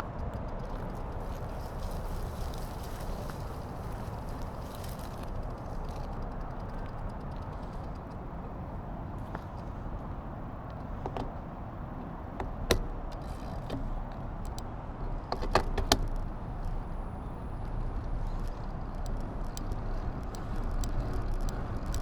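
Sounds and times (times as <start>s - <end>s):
sharp clicks: 0.0s - 22.0s
wind and road rumble: 0.0s - 22.0s.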